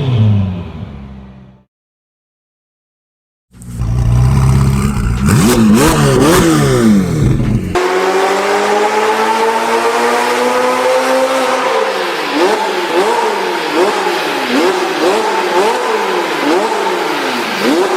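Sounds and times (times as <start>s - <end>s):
sports car engine revving: 3.6s - 17.9s.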